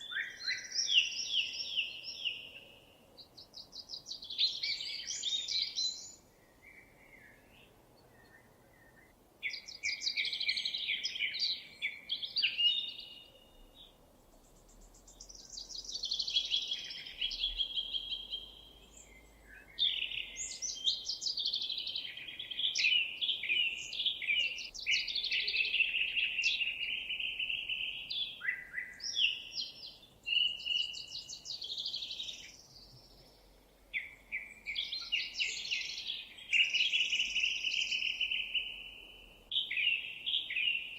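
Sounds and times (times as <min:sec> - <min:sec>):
songbirds chirping and trilling: 0:00.0 - 0:40.9.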